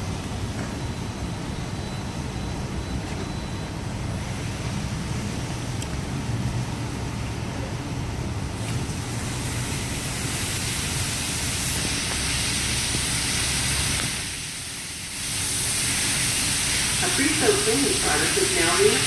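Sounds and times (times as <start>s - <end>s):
car wash motor hum: 0.0s - 19.0s
car wash rushing hiss: 4.0s - 19.0s.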